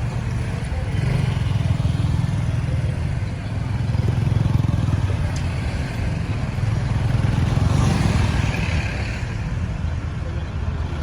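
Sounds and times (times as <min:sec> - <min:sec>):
motorbike and car engines rumbling: 0:00.0 - 0:11.0.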